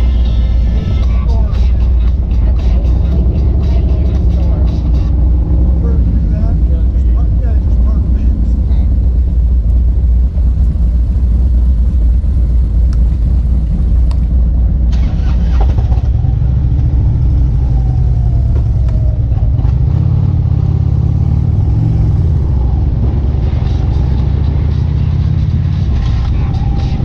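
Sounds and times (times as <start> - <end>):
loud car engine running: 0.0 - 27.0.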